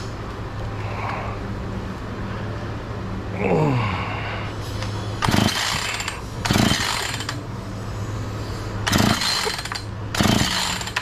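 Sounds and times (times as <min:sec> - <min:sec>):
chainsaw recoil starter pulls: 0:05.2 - 0:07.4, 0:08.9 - 0:11.0.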